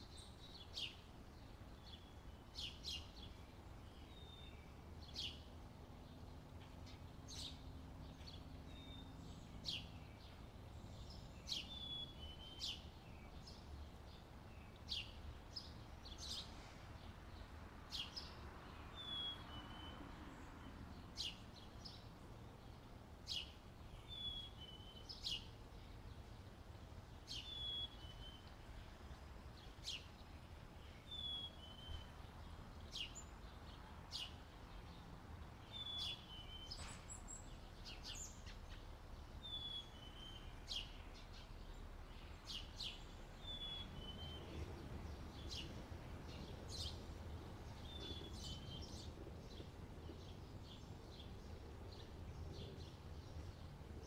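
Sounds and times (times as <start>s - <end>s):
birds chirping: 35.7s - 54.0s
faint low rumble: 40.6s - 54.0s.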